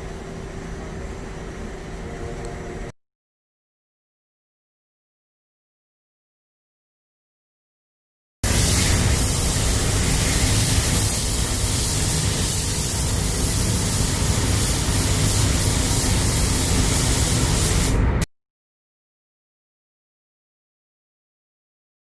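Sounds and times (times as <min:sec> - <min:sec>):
paint spray gun hissing: 0:08.4 - 0:18.0.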